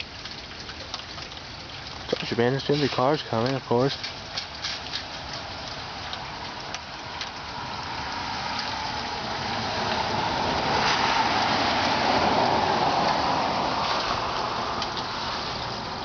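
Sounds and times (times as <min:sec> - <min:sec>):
tyre hiss on wet road: 0:07.5 - 0:16.0.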